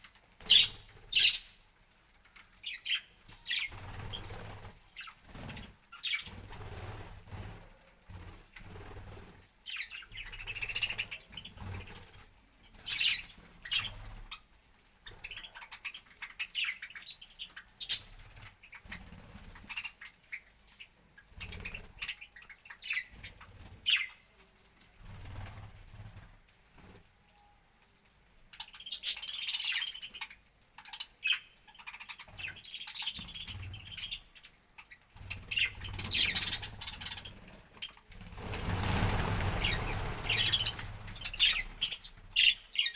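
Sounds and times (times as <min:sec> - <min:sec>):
parrots chirping and squawking: 0:28.6 - 0:42.9.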